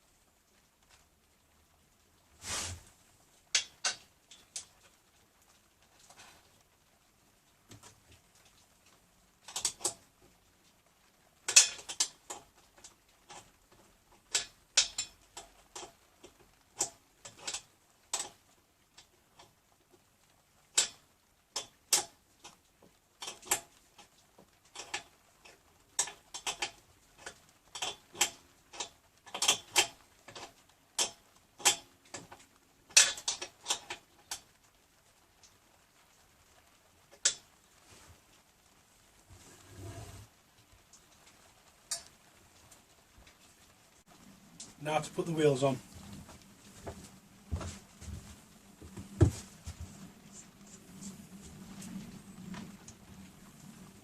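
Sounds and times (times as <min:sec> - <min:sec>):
metal parts clicking and tapping: 0:14.2 - 0:18.4, 0:26.0 - 0:34.4.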